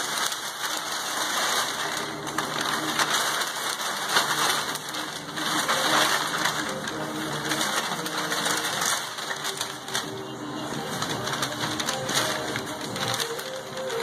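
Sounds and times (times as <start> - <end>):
wrapping paper crinkling and tearing: 0.0 - 14.0.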